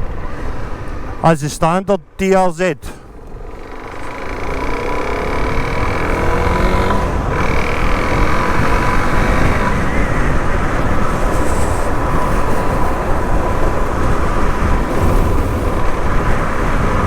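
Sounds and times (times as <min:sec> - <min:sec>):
motorcycle engine running: 0:03.1 - 0:17.0
wind rush over microphone: 0:06.6 - 0:17.0.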